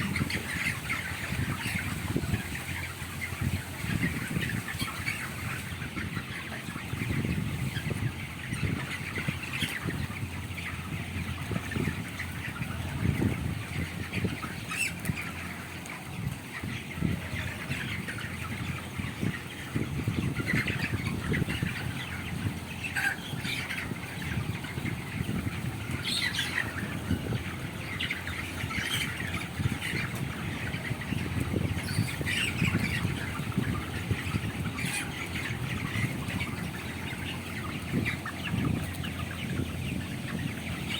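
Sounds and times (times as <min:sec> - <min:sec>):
chickens squawking and calling: 0:00.0 - 0:40.9.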